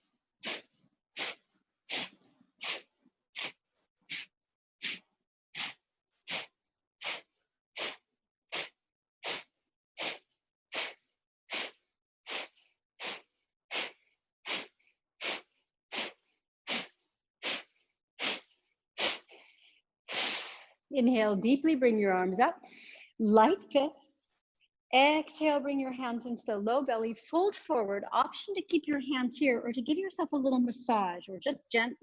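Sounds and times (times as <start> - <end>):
forceful exhalations through nose: 0.4 - 20.8, 22.6 - 23.1.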